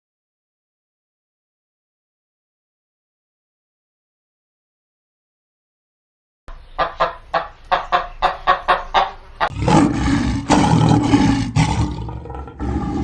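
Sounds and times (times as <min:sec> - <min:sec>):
animal long rough roar: 0:09.5 - 0:13.0.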